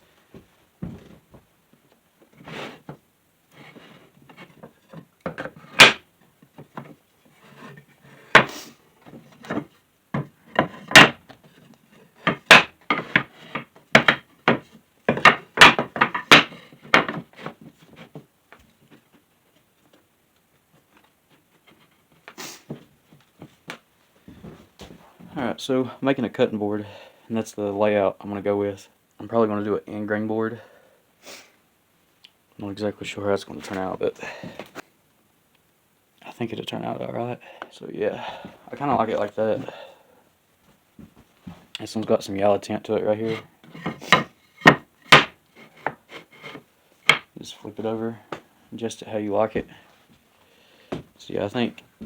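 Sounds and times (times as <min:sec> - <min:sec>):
wooden boards knocking: 0:05.3 - 0:06.0, 0:09.4 - 0:11.2, 0:12.2 - 0:17.4, 0:43.3 - 0:46.0, 0:47.0 - 0:47.3.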